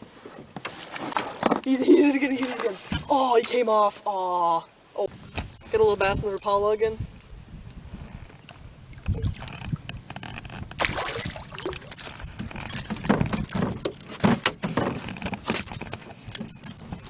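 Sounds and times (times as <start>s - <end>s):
water splashing: 1.7s - 3.8s, 8.5s - 9.8s, 10.8s - 13.1s
knocks in a canoe: 12.0s - 16.1s.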